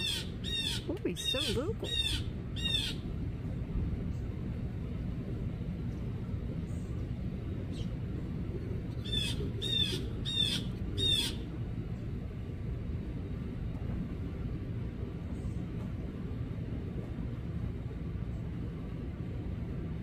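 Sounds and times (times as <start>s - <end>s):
blue jay harsh calls: 0.0s - 3.1s, 9.0s - 11.5s
low background rumble: 0.0s - 20.0s.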